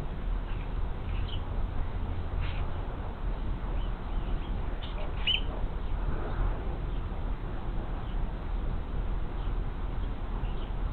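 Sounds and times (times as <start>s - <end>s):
low outdoor rumble: 0.0s - 10.9s
high bird chirps: 4.1s - 5.5s.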